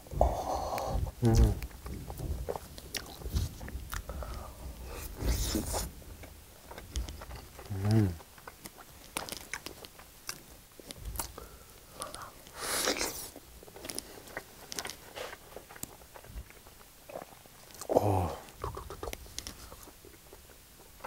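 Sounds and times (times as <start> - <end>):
biting and chewing: 0.0 - 21.0
clicky mouth sounds: 0.6 - 4.4, 15.8 - 21.0.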